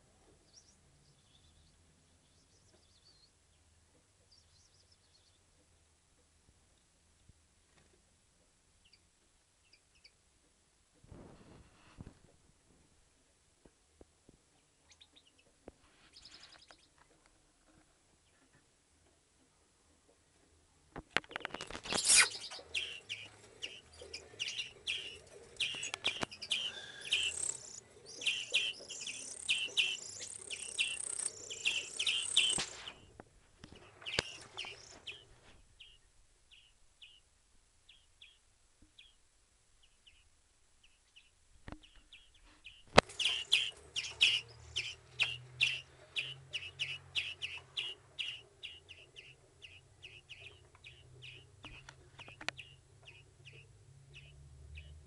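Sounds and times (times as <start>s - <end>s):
birds chirping: 21.1s - 39.2s, 39.8s - 55.0s.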